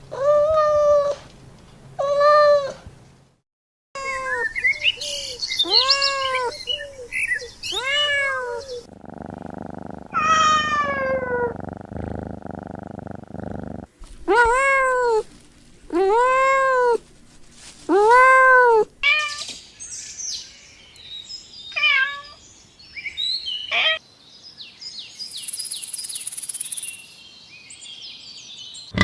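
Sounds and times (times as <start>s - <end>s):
cats meowing: 7.7s - 8.9s, 10.1s - 11.6s, 14.2s - 15.3s, 21.7s - 22.4s.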